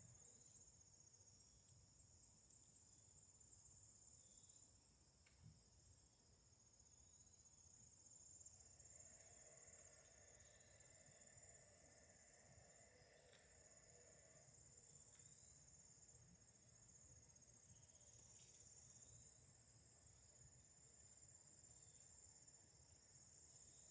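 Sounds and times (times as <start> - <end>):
faint cricket chorus: 0.0 - 23.9.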